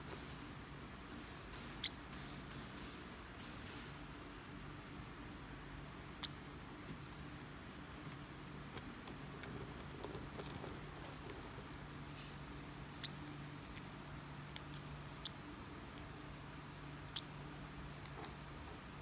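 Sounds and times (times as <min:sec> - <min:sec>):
parrotlet squeaking: 0:13.0 - 0:13.3.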